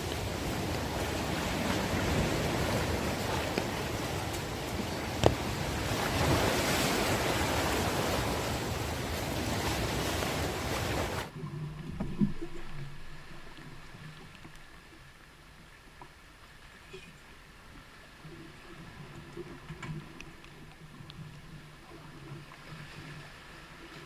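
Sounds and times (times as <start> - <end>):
heavy rain falling: 0.0 - 11.3.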